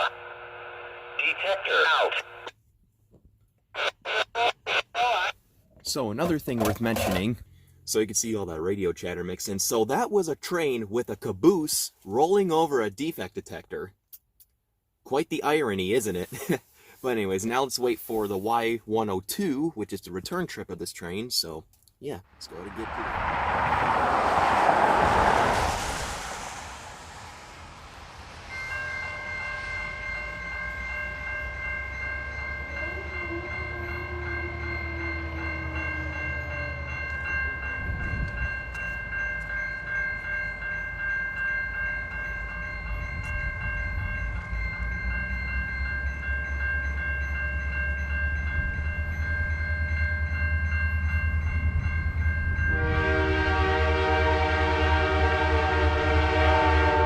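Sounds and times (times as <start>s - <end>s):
locomotive engine rumble: 22.3s - 40.6s
railroad crossing bell ringing: 22.4s - 57.0s
locomotive air horn blowing: 52.7s - 57.0s.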